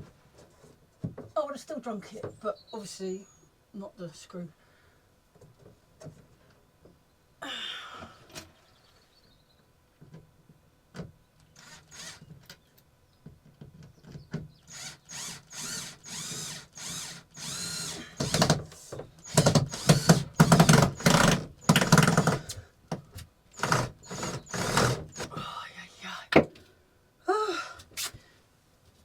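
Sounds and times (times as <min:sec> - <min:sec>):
power drill driving screws into wood: 0:11.5 - 0:12.3, 0:14.7 - 0:22.6, 0:23.5 - 0:25.3.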